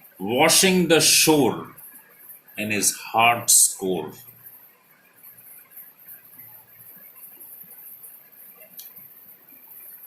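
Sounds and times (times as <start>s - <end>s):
small ticks: 4.3s - 10.0s.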